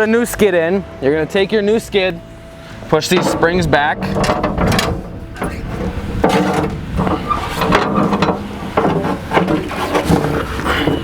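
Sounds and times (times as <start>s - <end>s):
steady low hum: 2.1s - 9.7s
plastic skid knocking against steel frame: 3.1s - 11.0s.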